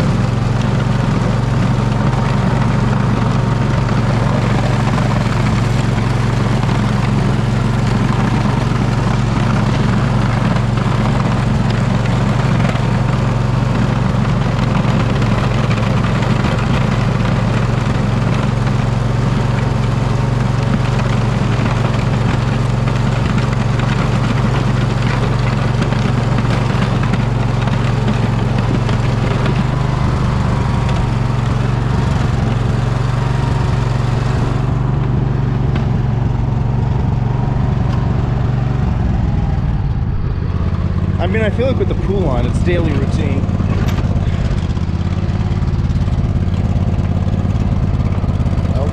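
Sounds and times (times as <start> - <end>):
riding mower engine running: 0.0 - 48.9.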